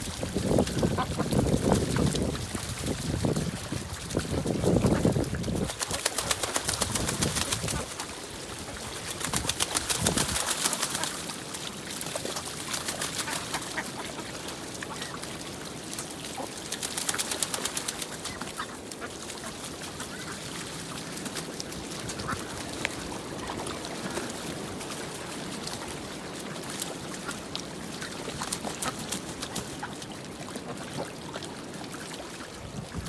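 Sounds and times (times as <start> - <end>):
wind rumble on microphone: 0.0 - 10.5, 32.5 - 33.0
crackling water splashes: 0.0 - 33.0
ducks quacking: 0.5 - 2.0, 13.0 - 15.2.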